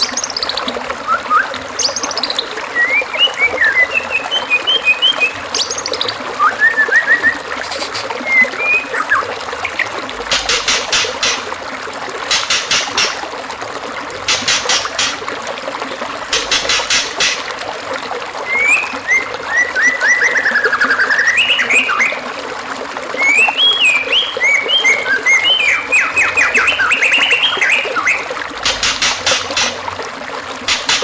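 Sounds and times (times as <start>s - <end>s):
running water trickling: 0.0s - 31.0s
bird whistled notes: 1.1s - 2.0s, 2.8s - 9.2s, 23.2s - 28.3s.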